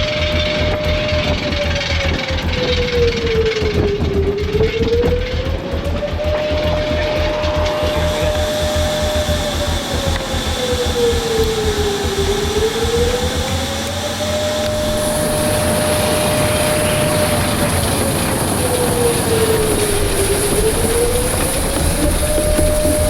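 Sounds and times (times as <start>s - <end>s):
jet aircraft noise: 0.0s - 23.0s
mid-pitched tone sinking and rising: 4.9s - 23.0s
thin high whine: 5.8s - 23.0s.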